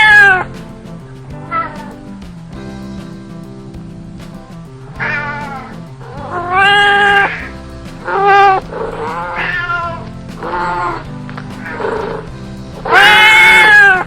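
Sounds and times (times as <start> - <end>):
cat meowing: 0.0 - 0.5, 5.0 - 7.5, 8.1 - 11.1, 12.8 - 14.0
background music: 0.0 - 14.0.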